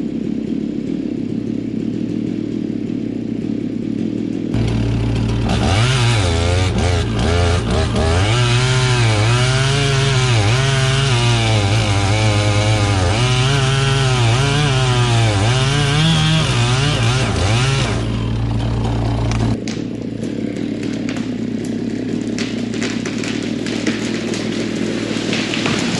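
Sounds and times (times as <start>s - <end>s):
chainsaw cutting into tree trunk: 0.0s - 25.9s.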